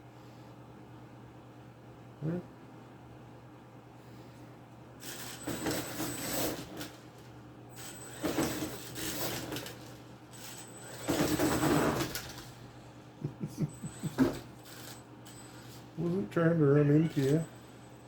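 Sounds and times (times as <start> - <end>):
toy truck tires and gears: 5.0 - 7.0, 7.8 - 12.5, 14.0 - 15.8
thin high-pitched motor whine: 7.7 - 12.4, 13.8 - 18.0.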